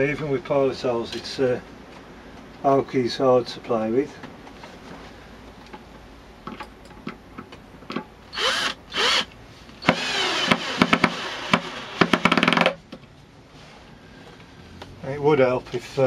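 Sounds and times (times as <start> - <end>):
cordless drill driving screw: 8.3 - 12.7
drill clutch rapid clicking: 8.4 - 12.7.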